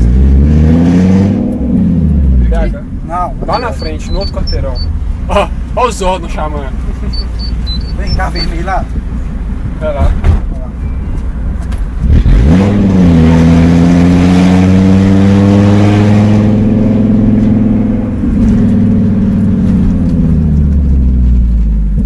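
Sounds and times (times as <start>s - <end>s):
loud car engine revving: 0.0s - 10.2s, 11.4s - 22.0s
wind noise on microphone: 7.5s - 12.9s.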